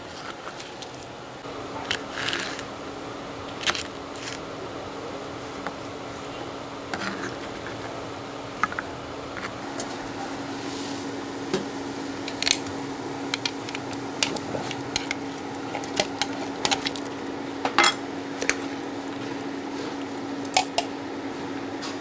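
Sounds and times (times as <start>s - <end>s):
steady low hum: 0.0s - 21.9s
utensils clinking against dishes: 11.5s - 18.8s, 19.8s - 20.9s.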